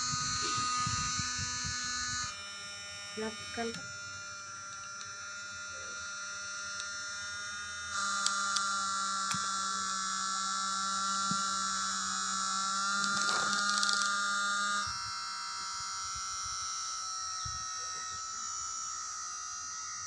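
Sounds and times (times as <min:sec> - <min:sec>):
small motor whining: 0:00.0 - 0:20.0.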